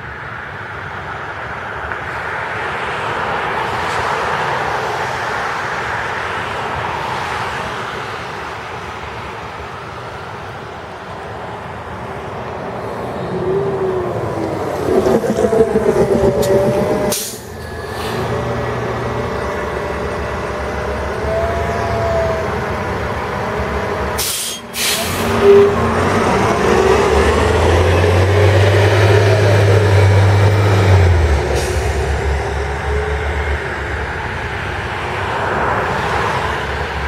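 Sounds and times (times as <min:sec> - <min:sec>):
vehicles hissing on wet road: 0:00.0 - 0:37.0
heavy vehicle engine humming: 0:07.9 - 0:37.0.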